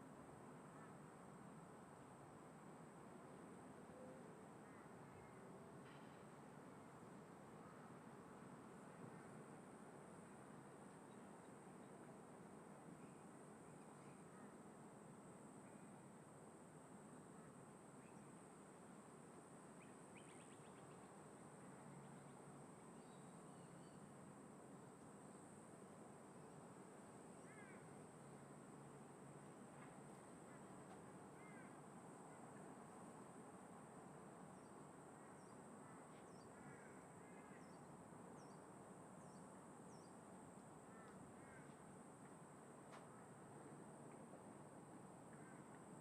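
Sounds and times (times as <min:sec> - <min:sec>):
wind: 0:00.0 - 0:46.0
faint crows cawing: 0:04.6 - 0:05.0, 0:27.5 - 0:27.9, 0:31.4 - 0:31.8, 0:35.2 - 0:37.7, 0:40.9 - 0:41.8, 0:45.3 - 0:45.7.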